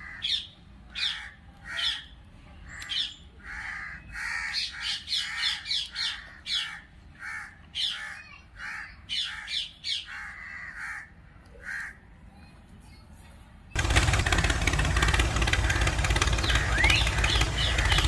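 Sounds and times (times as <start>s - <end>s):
birds calling harshly: 0.0s - 13.1s, 13.8s - 18.0s.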